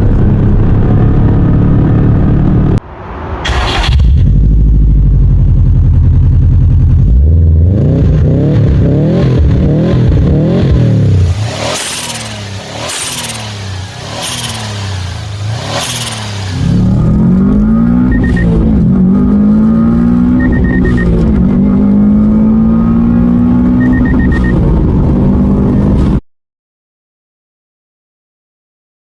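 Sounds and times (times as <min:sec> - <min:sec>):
car engine revving: 0:00.0 - 0:26.2.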